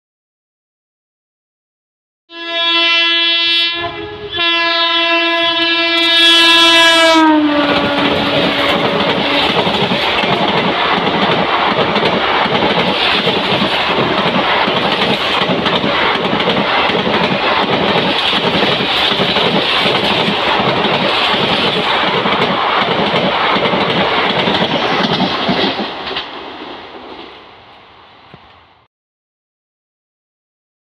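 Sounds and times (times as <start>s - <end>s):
locomotive horn blasts: 2.3s - 9.5s
train wheels clattering over rail joints: 7.8s - 26.4s.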